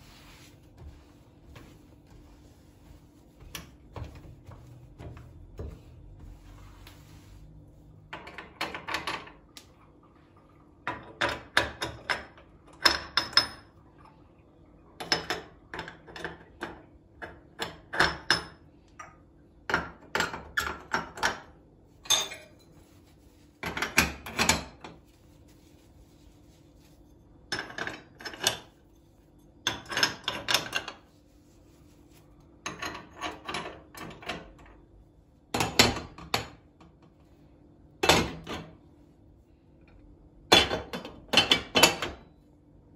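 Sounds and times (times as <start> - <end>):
kitchen items clattering: 19.9 - 22.8.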